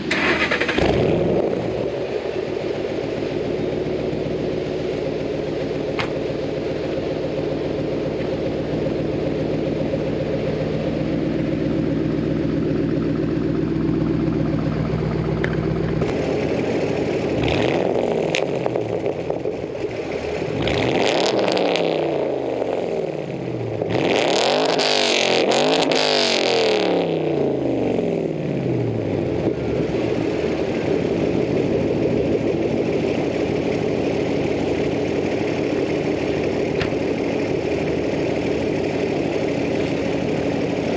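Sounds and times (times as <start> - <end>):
car engine idling and revving: 0.0 - 40.9.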